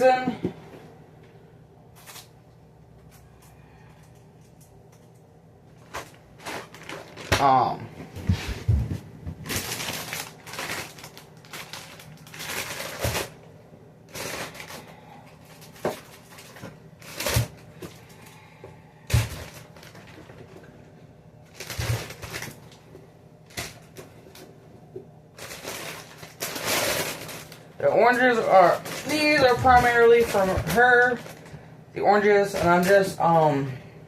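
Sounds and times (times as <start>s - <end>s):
plastic bag rustling: 1.9s - 2.4s, 5.7s - 20.8s, 21.4s - 24.6s, 25.3s - 33.5s.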